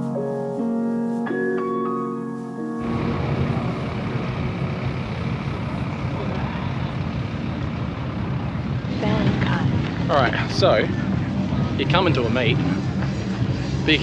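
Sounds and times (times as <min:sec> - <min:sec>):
piano tune: 0:00.0 - 0:09.3
road noise: 0:02.8 - 0:14.0
vehicle engine rumble: 0:02.8 - 0:14.0.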